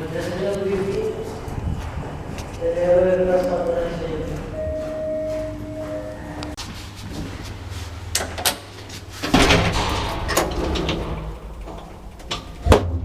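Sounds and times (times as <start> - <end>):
door banging shut: 9.2 - 11.4.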